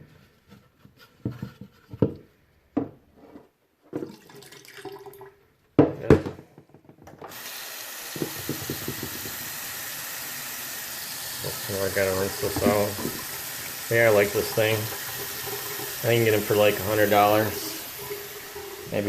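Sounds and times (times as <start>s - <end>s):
water running into a sink: 4.0s - 5.3s, 7.3s - 19.0s
knocks and clunks: 5.8s - 7.3s.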